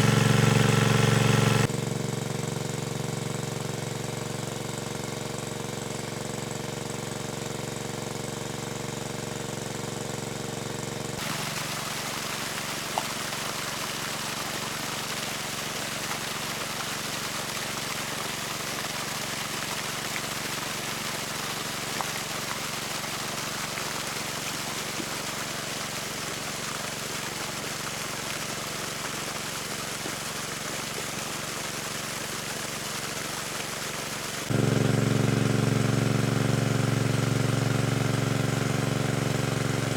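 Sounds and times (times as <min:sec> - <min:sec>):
small engine running: 0:00.0 - 0:39.9
water rushing: 0:11.2 - 0:34.5.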